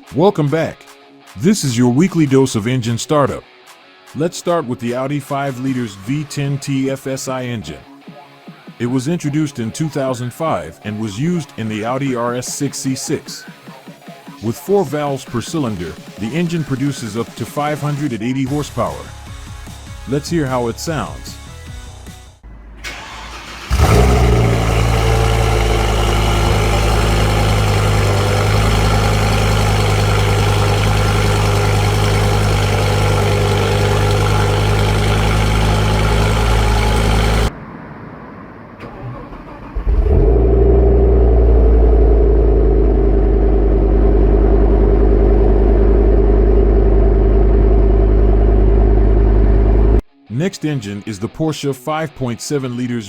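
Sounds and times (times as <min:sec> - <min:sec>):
car engine starting and idling: 0:22.5 - 0:50.0.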